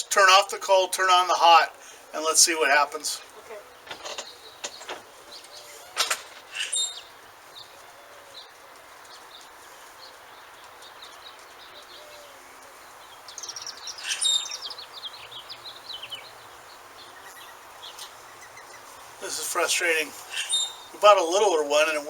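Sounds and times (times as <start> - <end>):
faint steady hiss: 0.0 - 22.0
songbird chirping and trilling: 0.0 - 22.0.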